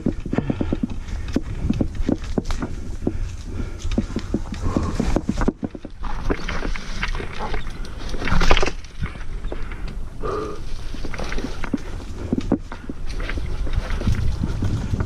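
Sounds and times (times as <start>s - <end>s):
low rumble of tyres on trail: 0.0s - 15.0s.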